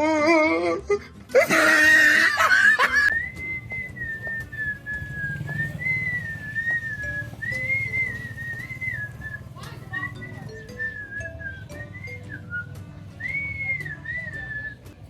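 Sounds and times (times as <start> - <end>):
person whistling a tune: 3.1 - 14.9.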